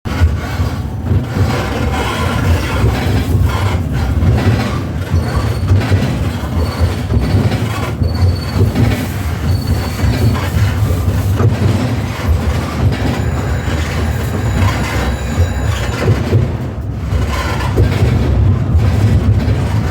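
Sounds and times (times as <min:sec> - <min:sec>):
tram rumbling: 0:00.0 - 0:19.9
high-pitched tram squeaks: 0:01.4 - 0:18.1.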